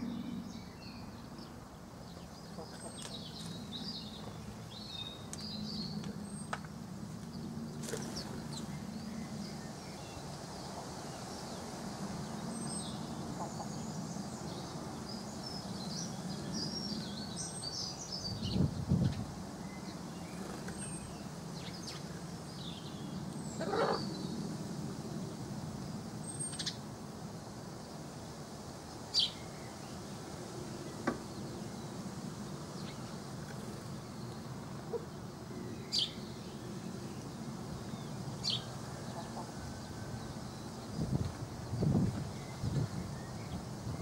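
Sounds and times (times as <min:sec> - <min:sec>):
steady low hum: 0:00.0 - 0:02.6
small birds chirping: 0:00.0 - 0:26.9, 0:27.5 - 0:44.0.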